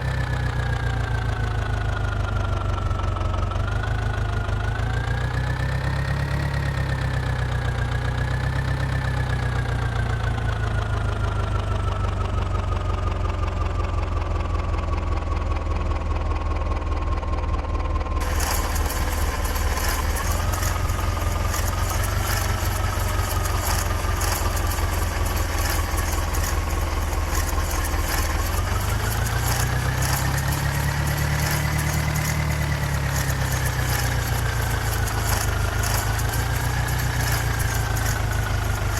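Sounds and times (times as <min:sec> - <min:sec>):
dense rattling hiss: 0:18.2 - 0:38.9
tractor diesel engine running: 0:18.2 - 0:38.9.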